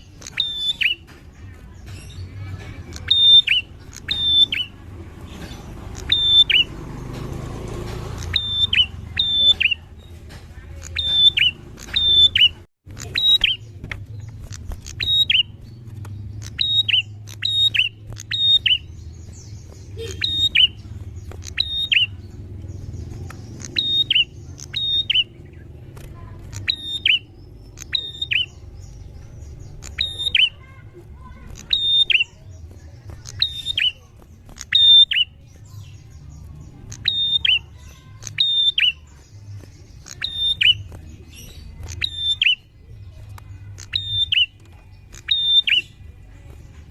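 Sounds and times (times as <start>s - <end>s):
bird calling sharp notes: 0.0s - 1.1s, 2.9s - 4.8s, 5.8s - 6.9s, 8.1s - 10.0s, 14.4s - 22.5s, 23.3s - 25.7s, 26.5s - 28.9s, 29.6s - 35.4s, 36.9s - 39.2s, 40.0s - 42.7s, 43.7s - 46.0s.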